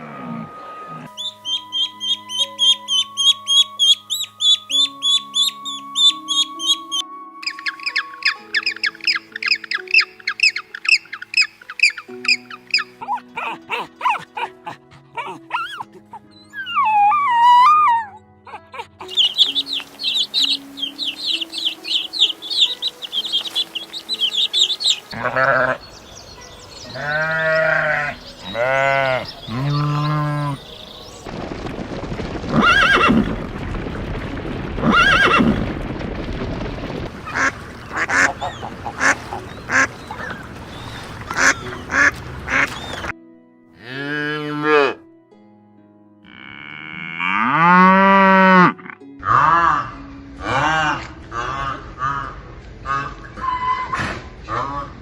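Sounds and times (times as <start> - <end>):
faint background music: 0.0 - 33.5, 37.1 - 55.0
rapid high chirping: 1.2 - 12.9, 19.1 - 25.2.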